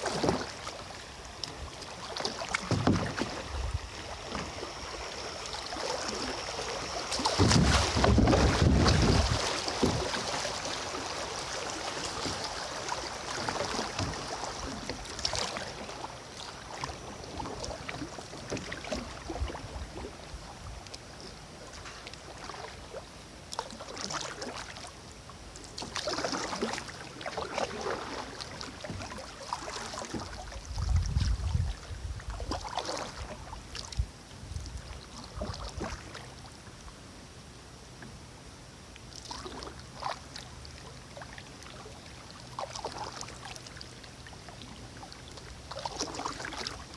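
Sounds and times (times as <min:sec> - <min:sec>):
water washing: 0:00.0 - 0:19.3
kayak paddle splashing in water: 0:00.0 - 0:24.9, 0:25.5 - 0:34.0, 0:34.6 - 0:36.5, 0:39.1 - 0:46.9.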